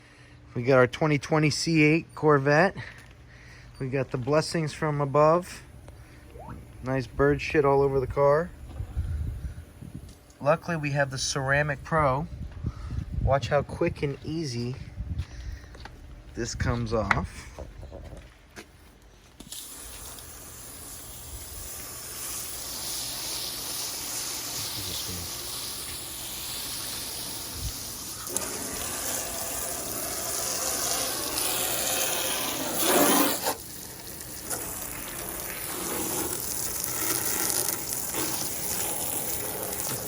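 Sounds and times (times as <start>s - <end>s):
water jet spraying on car: 19.5s - 40.0s.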